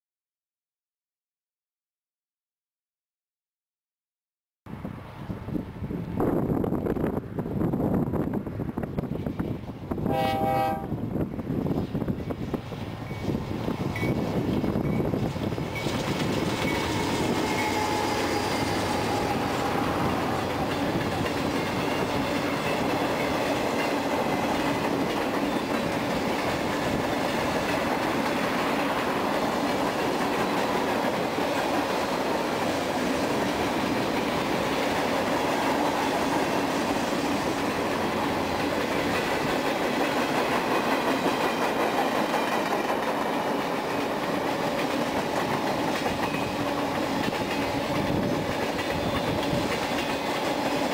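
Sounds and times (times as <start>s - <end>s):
train cars clattering over rails: 12.2s - 50.9s.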